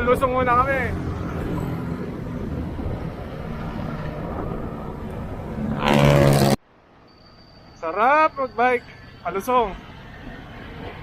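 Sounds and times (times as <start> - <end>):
wind rushing over microphone: 0.0 - 6.6
bicycle road noise: 0.0 - 11.0.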